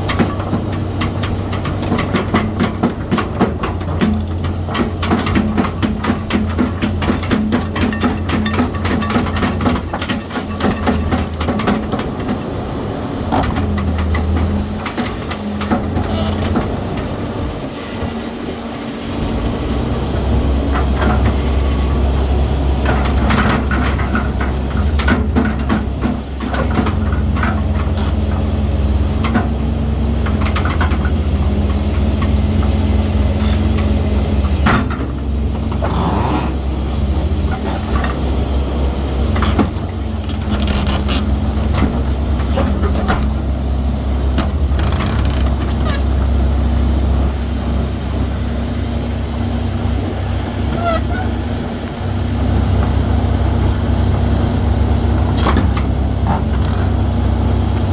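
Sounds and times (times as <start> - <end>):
metallic clanks and knocks: 0.0 - 12.4, 13.3 - 17.1, 22.8 - 35.9
excavator diesel engine running: 0.0 - 57.9.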